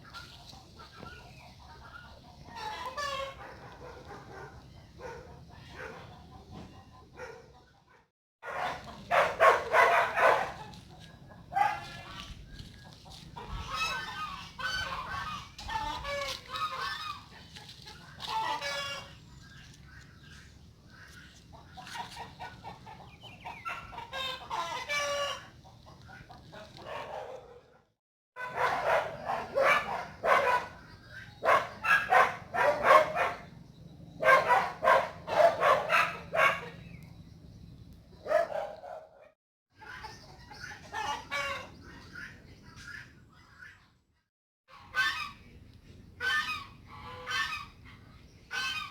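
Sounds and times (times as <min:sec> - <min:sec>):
chickens clucking: 0:00.0 - 0:08.0, 0:08.6 - 0:27.2, 0:39.8 - 0:43.8, 0:46.2 - 0:48.9.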